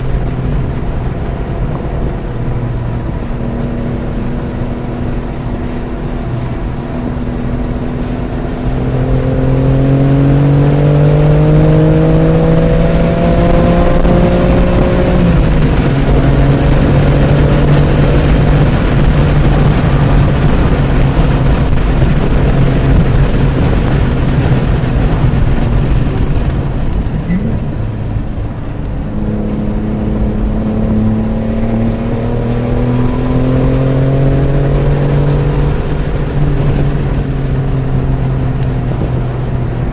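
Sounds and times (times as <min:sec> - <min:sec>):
car engine at full throttle: 0:00.0 - 0:39.9
wind noise: 0:00.0 - 0:39.9.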